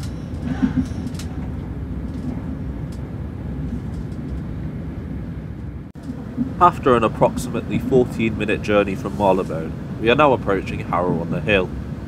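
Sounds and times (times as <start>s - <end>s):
train rumbling from inside: 0.0s - 12.0s.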